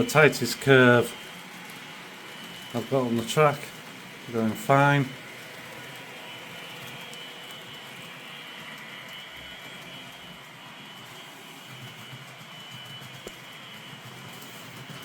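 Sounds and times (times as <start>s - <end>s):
electric train running with whine: 0.0s - 15.0s.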